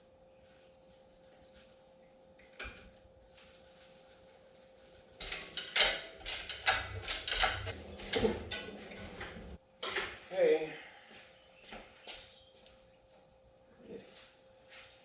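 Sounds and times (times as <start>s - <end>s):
clunk: 5.2s - 10.1s
metal tools clanking and rattling: 5.2s - 10.1s.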